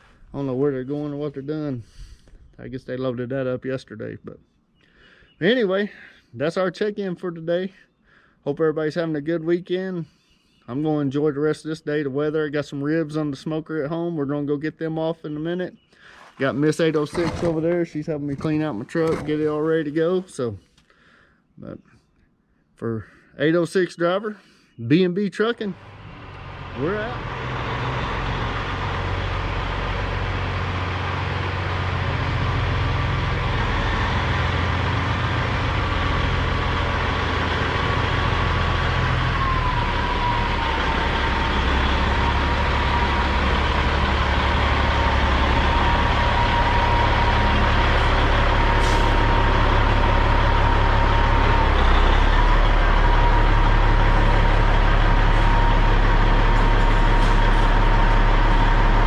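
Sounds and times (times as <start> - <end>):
truck diesel engine running: 25.7 - 59.0.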